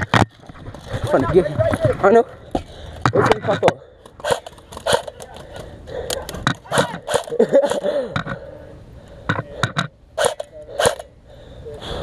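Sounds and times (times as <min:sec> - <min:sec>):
airsoft gun shots: 0:04.2 - 0:05.2, 0:06.4 - 0:07.4, 0:10.2 - 0:11.0.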